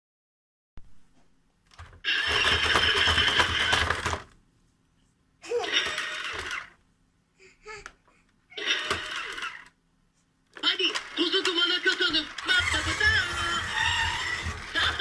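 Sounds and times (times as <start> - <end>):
toy engine sound effect: 2.1 - 4.1, 5.7 - 6.8, 8.6 - 9.7, 10.8 - 15.0
toy voice phrases: 10.6 - 13.8, 14.6 - 15.0.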